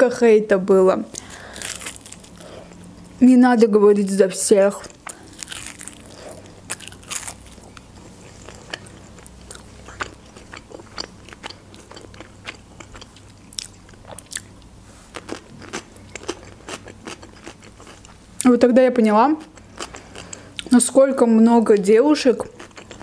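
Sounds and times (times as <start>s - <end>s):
person chewing crunchy food: 1.2s - 3.1s, 4.8s - 18.2s, 19.4s - 20.7s, 22.4s - 23.0s.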